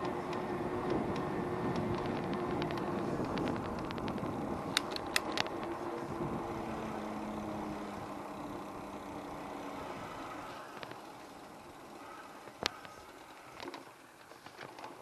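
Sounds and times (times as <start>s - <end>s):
sharp clicks: 0.0s - 5.7s
faint engine hum: 0.0s - 15.0s
traffic noise: 0.0s - 15.0s.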